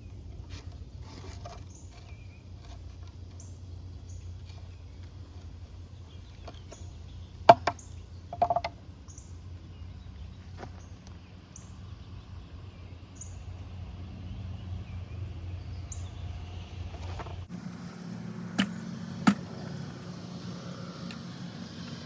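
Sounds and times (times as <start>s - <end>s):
steady low hum: 0.0s - 22.0s
bird chirping: 1.2s - 21.2s
sharp knocks: 7.5s - 8.8s.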